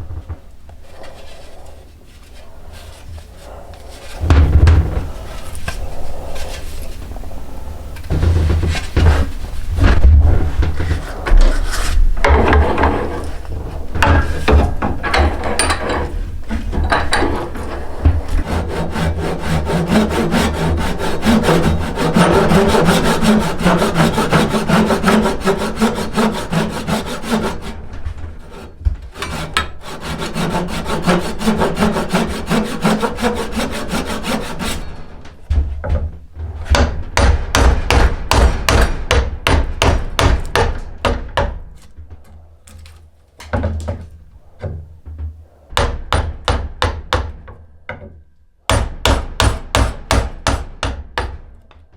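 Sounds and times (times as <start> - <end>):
hand tool scraping wood: 0.0 - 35.4.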